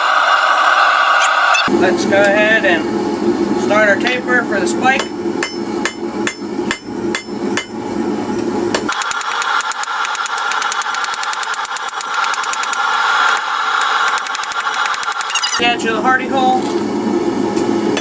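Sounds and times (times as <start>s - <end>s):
hammer striking steel on anvil: 5.0s - 7.8s.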